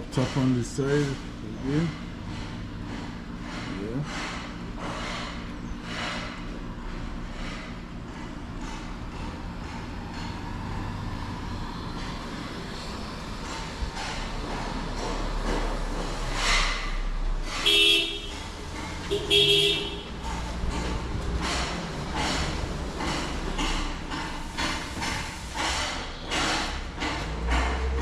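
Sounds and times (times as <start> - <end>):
passing road traffic: 0.0 - 28.0
vehicle horn honking: 17.6 - 18.5, 19.1 - 20.2.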